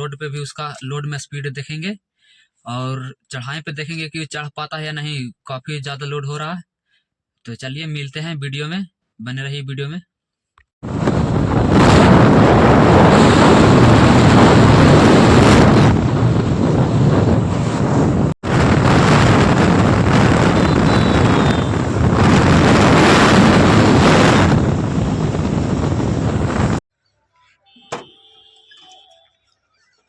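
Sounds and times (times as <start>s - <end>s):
wind buffeting microphone: 10.8s - 26.8s.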